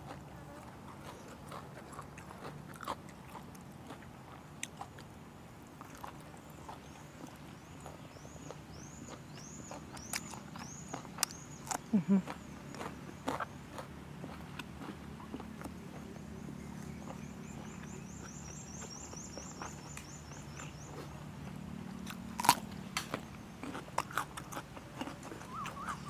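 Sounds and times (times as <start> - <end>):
wet chewing and crunching: 0.0 - 26.0
bird chirping: 6.5 - 13.9, 15.2 - 21.6, 25.3 - 26.0.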